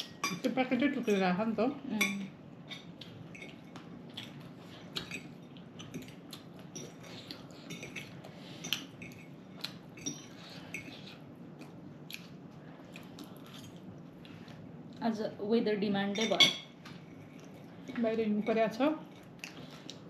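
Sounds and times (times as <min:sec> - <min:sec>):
faint steady hum: 0:00.0 - 0:20.0
cutlery and dishes clinking: 0:02.0 - 0:11.0, 0:16.1 - 0:19.3.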